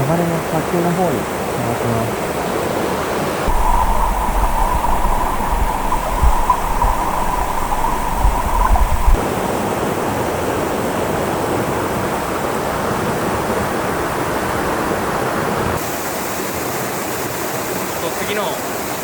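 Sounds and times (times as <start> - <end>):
low rumble: 3.5 - 9.2
mountain stream rushing: 3.5 - 9.2.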